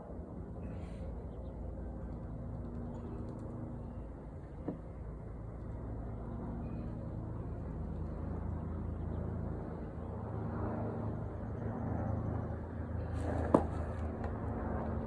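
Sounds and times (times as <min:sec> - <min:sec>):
engine low drone: 0:00.0 - 0:15.0.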